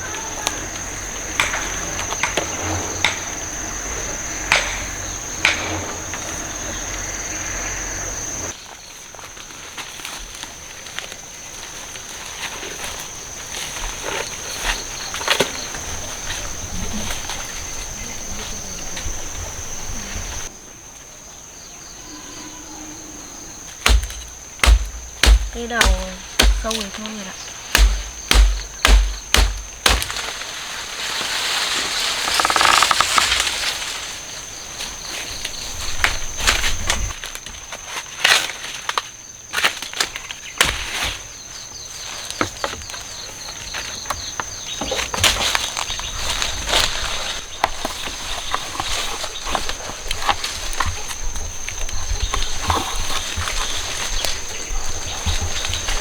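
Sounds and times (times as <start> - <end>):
insects droning: 0.0 - 56.0
plants rustling: 23.7 - 56.0
sharp cracks: 23.8 - 30.4, 32.0 - 33.8
blade chopping plant stalks: 23.8 - 33.9, 39.6 - 41.3.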